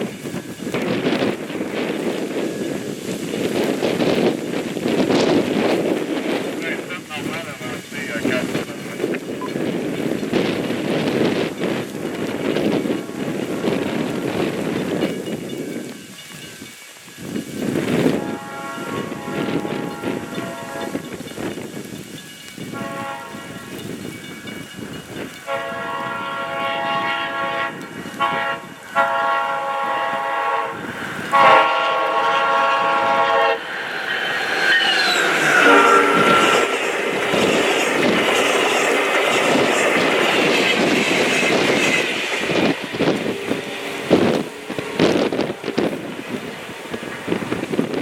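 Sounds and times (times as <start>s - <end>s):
train wheels roaring on rails: 0.0s - 48.0s
train horn blasts: 18.0s - 21.2s, 22.7s - 24.1s, 25.4s - 33.7s, 35.1s - 37.5s.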